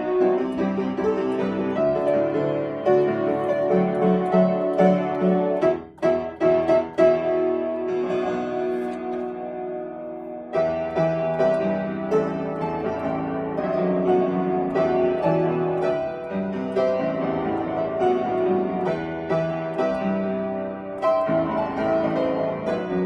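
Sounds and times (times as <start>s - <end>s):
solo piano playing: 0.0s - 23.0s.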